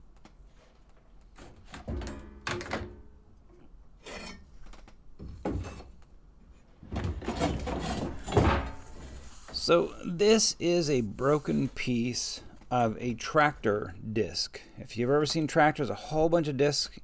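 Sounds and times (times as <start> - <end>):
objects thudding and clattering: 1.3 - 9.6.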